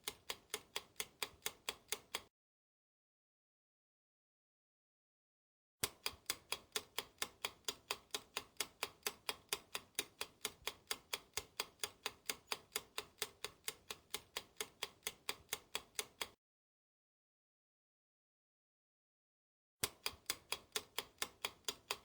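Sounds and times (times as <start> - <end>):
clock ticking: 0.0 - 2.3, 5.8 - 16.4, 19.8 - 22.0.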